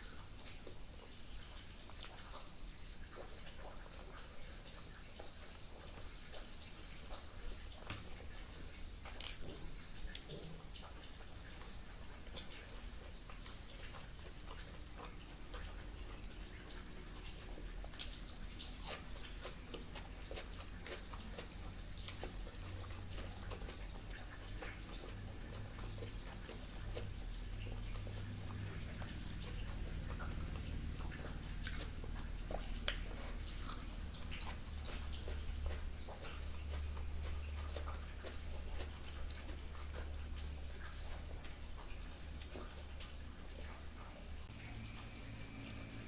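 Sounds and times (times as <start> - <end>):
person chewing: 1.9 - 3.9, 8.1 - 42.7
low steady hum: 41.4 - 46.0.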